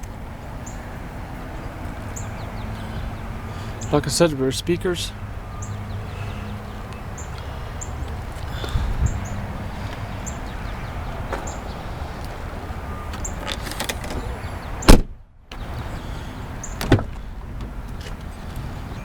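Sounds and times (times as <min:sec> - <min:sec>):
car door slamming: 0:13.1 - 0:15.2, 0:16.7 - 0:18.2.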